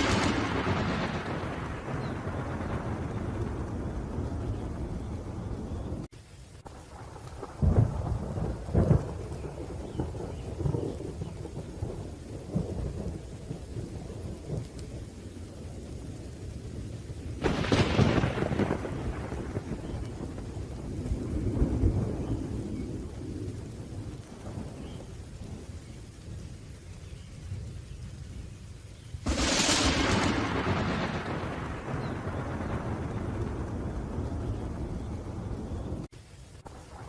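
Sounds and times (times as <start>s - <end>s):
sharp thunderclap: 0.0s - 6.1s, 6.9s - 14.9s, 17.4s - 25.7s, 29.2s - 36.1s
rain falling: 0.0s - 37.0s
thunder rumbling: 0.0s - 37.0s.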